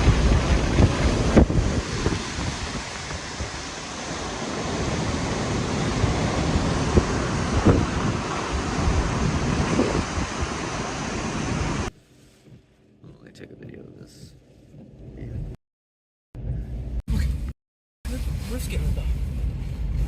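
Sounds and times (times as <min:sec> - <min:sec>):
strong wind and driven water rushing: 0:00.0 - 0:11.9
wind buffeting microphone: 0:00.0 - 0:11.9.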